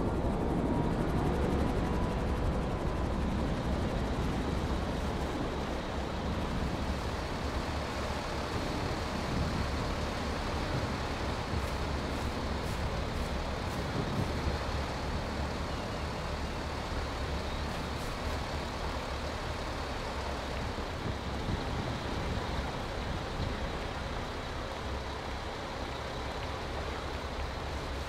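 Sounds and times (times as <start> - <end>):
vehicle engine rumble: 0.0 - 28.0
road noise: 3.3 - 28.0.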